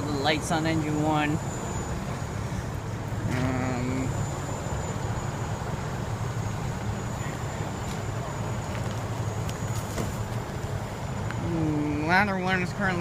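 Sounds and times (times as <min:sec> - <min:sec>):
low moaning tone: 0:00.0 - 0:05.5
fire engine diesel idling: 0:00.0 - 0:13.0.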